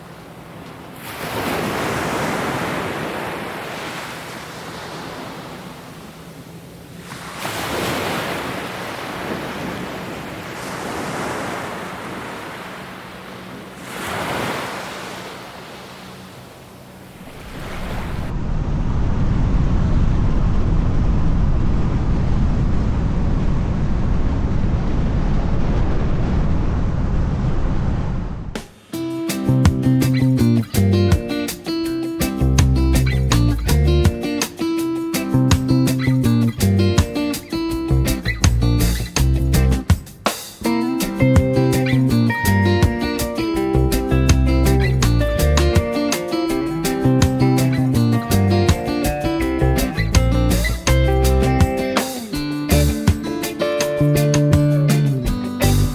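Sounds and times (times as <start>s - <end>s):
sea waves washing onto shore: 0.0s - 18.4s
low rumble: 18.2s - 28.6s.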